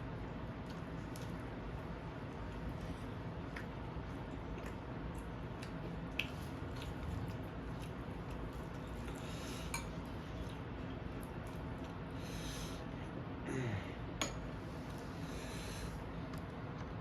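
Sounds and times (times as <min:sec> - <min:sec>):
person chewing food: 0:00.6 - 0:12.2.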